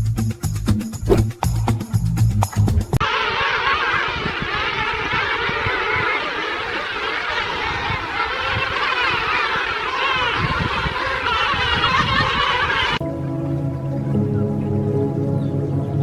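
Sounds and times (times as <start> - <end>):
many birds chattering: 4.6 - 13.0.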